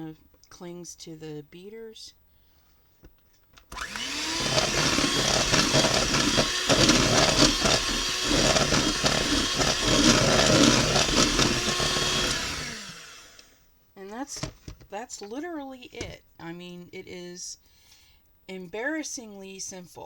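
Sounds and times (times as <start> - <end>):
electric mixer whining: 3.7 - 13.5
beaters whipping cream: 3.8 - 13.4.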